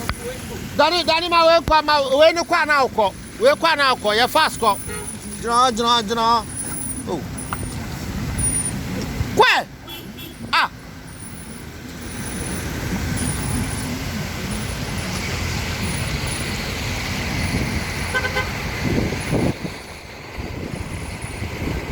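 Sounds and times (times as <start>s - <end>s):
tyres hissing on road: 0.0s - 21.9s
vehicle engines passing: 0.0s - 21.9s
car horn toot: 0.8s - 7.8s, 9.8s - 11.3s, 17.3s - 19.6s.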